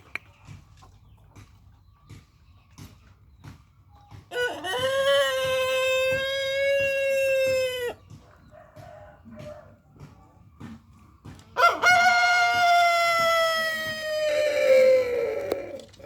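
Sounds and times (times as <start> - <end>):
rooster crowing: 11.6 - 15.8.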